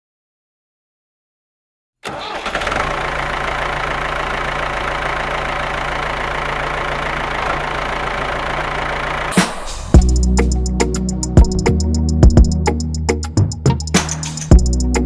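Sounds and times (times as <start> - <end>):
tractor engine starting and idling: 2.0 - 10.2.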